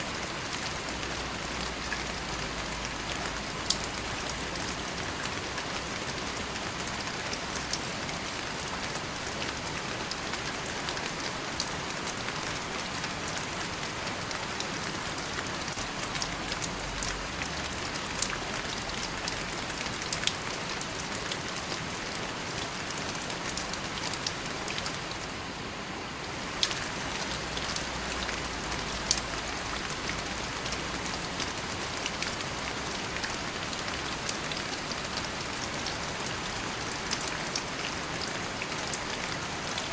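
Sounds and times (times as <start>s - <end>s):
steady rain falling: 0.0s - 39.9s
water drip ticks: 1.7s - 4.4s.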